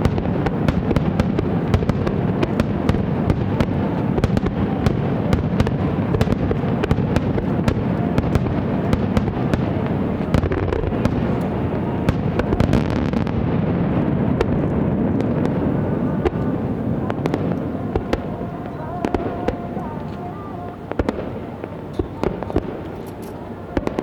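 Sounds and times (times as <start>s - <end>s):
fireworks rumble: 0.0s - 24.0s
fireworks cracks and pops: 20.8s - 24.0s.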